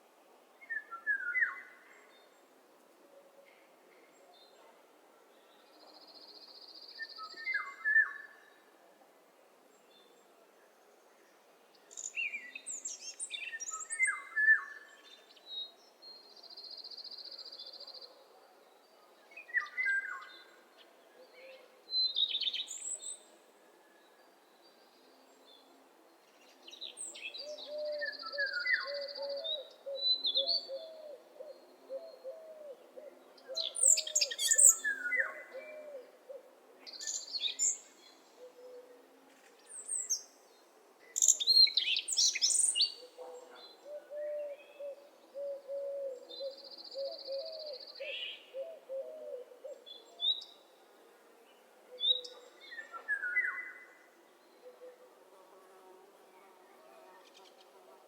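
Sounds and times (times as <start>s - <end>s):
birds singing and calling: 33.5s - 36.0s, 41.2s - 50.6s.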